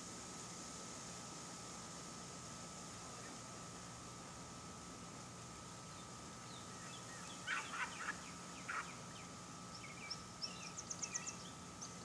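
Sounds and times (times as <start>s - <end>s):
faint steady tone and hum: 0.0s - 12.0s
small birds chirping: 5.8s - 12.0s.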